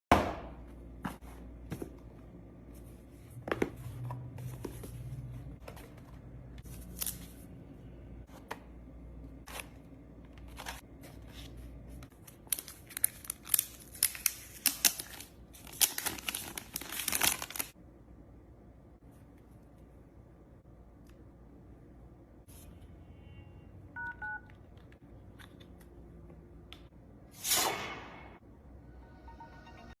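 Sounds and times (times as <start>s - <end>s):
paper and plastic tearing and crinkling: 12.3s - 17.7s.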